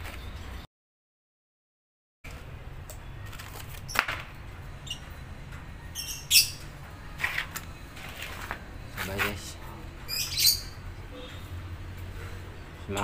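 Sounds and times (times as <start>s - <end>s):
small bird chirping: 4.8s - 5.2s, 5.9s - 6.7s, 10.0s - 11.5s.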